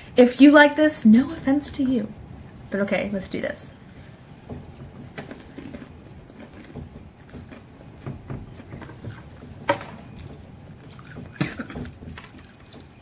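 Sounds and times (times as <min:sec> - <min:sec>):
people chewing crunchy snack: 0:05.2 - 0:13.0.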